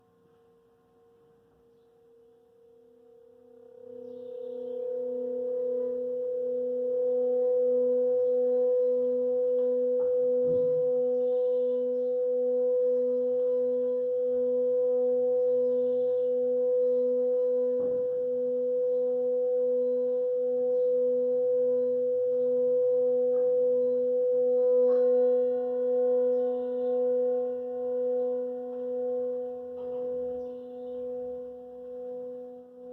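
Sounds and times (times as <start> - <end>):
singing bowl ringing: 1.0 - 32.9.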